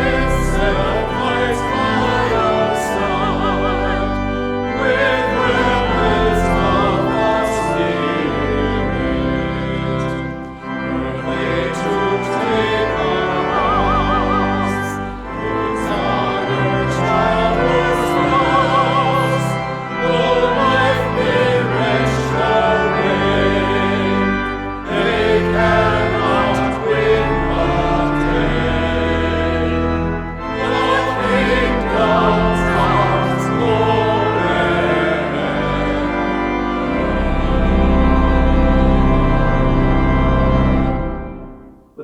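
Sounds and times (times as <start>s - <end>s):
voices singing with vibrato: 0.0s - 4.2s, 4.8s - 10.4s, 11.0s - 29.8s, 30.6s - 36.2s
organ chords: 0.0s - 42.0s.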